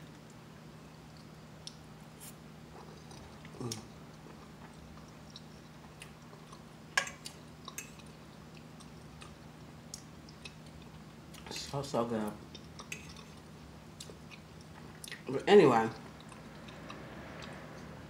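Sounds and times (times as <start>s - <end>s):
faint steady hum: 0.0s - 18.0s
wet chewing with mouth clicks: 2.7s - 11.8s, 12.5s - 15.3s, 15.9s - 18.0s.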